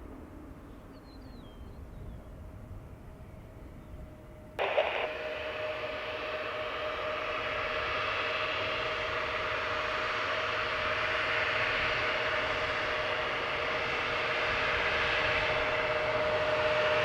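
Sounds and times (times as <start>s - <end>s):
low outdoor rumble: 0.0s - 17.0s
bird chirp: 0.7s - 2.3s
jet engine roar: 4.6s - 17.0s.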